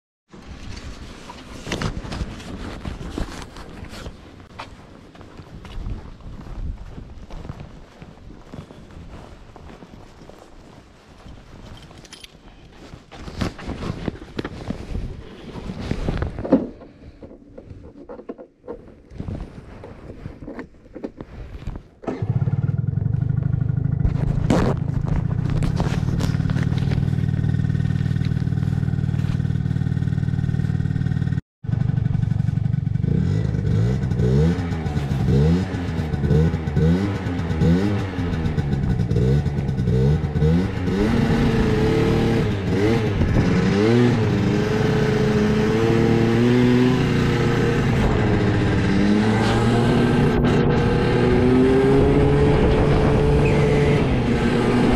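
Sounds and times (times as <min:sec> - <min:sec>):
scooter engine idling and revving: 0:22.0 - 0:54.9.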